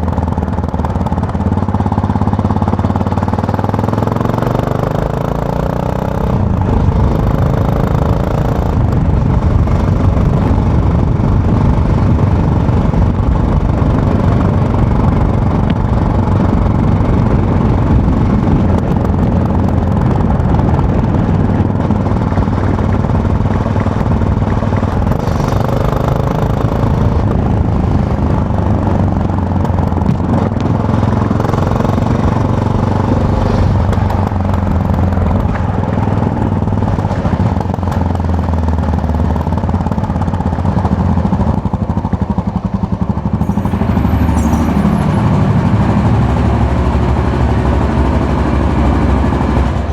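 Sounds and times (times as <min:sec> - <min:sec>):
motorcycle engine running: 0:00.0 - 0:49.9
wind and road noise: 0:00.0 - 0:49.9.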